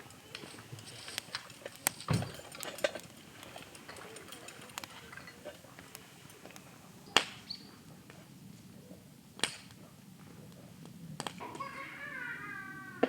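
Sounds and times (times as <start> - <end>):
wavering call with falling tones: 11.4 - 13.0.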